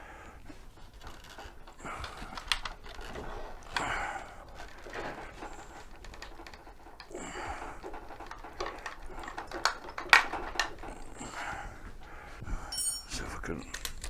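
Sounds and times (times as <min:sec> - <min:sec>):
metal hardware clicking: 0:12.7 - 0:14.0.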